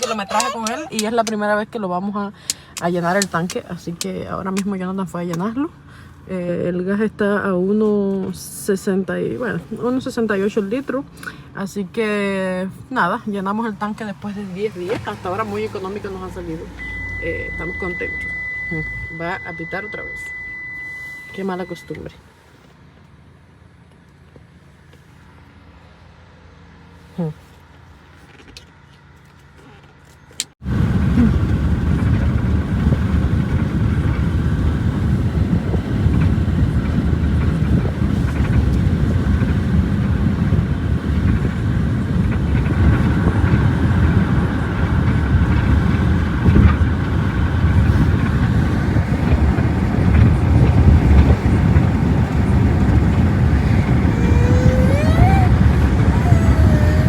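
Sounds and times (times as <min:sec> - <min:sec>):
brief wavering voice: 0:00.0 - 0:01.1, 0:53.7 - 0:57.0
road and engine rumble in car: 0:00.0 - 0:57.0.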